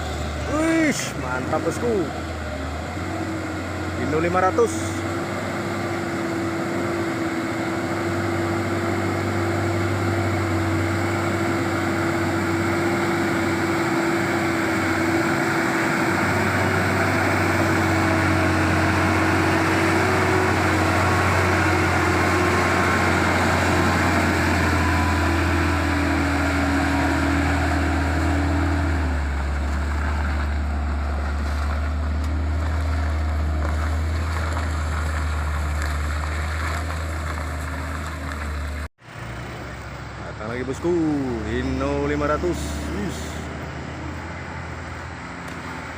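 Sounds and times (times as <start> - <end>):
diesel truck engine droning: 0.0 - 45.9.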